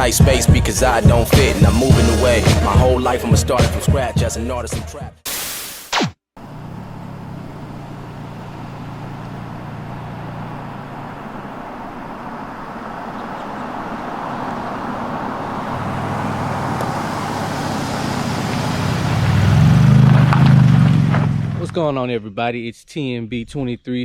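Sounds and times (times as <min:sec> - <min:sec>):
car engine and exhaust drone: 0:06.4 - 0:21.8
rushing noise: 0:14.8 - 0:21.7.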